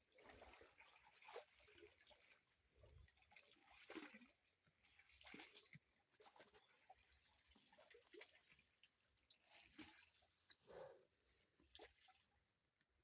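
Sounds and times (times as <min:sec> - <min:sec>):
river water splashing and dripping: 0:00.0 - 0:10.8.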